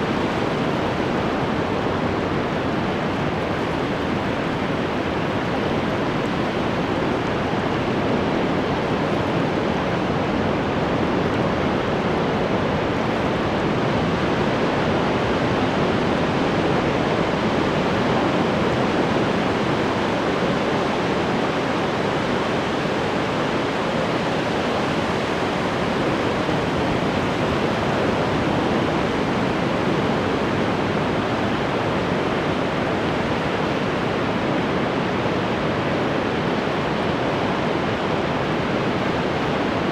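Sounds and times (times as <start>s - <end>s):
ocean waves breaking: 0.0s - 13.5s.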